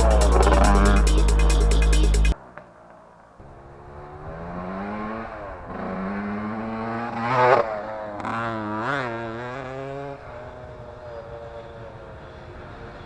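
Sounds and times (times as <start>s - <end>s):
two-stroke engine revving: 0.0s - 2.4s, 3.8s - 10.2s.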